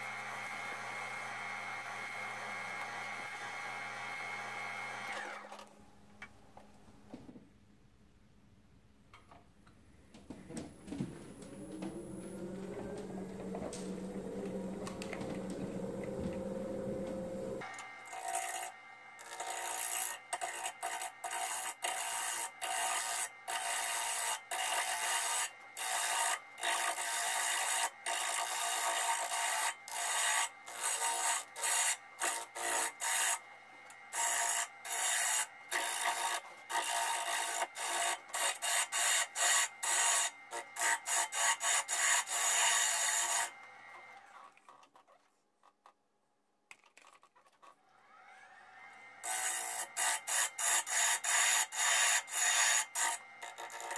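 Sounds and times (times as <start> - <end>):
abrasive rubbing on spinning wood: 10.5 - 17.6
lathe motor hum: 10.5 - 18.2.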